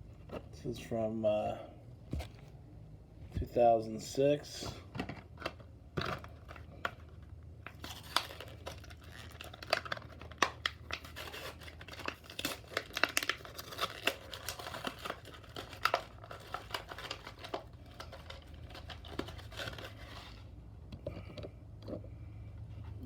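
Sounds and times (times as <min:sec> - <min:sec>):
packaging crinkling and tearing: 0:05.3 - 0:20.6.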